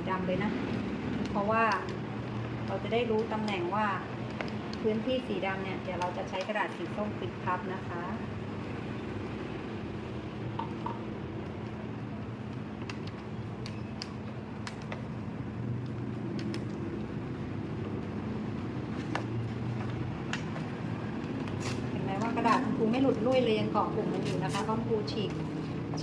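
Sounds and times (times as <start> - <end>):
low background hum: 0.0 - 26.0
paper tearing and crinkling: 21.5 - 21.9.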